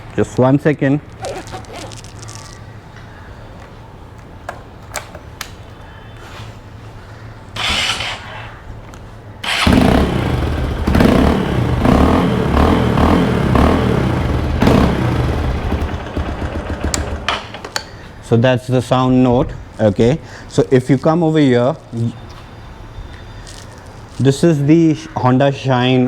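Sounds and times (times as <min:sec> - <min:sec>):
motorcycle engine revving: 0:07.6 - 0:08.3, 0:09.4 - 0:17.6.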